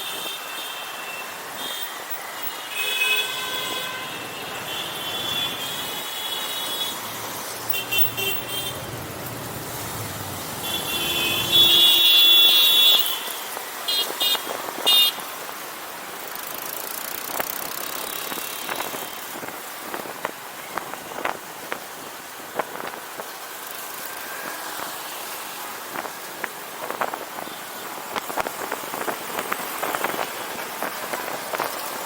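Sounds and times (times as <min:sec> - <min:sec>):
road and wind noise: 0:00.0 - 0:32.0
vehicle horns honking: 0:02.7 - 0:07.0, 0:07.7 - 0:08.9, 0:10.6 - 0:15.2.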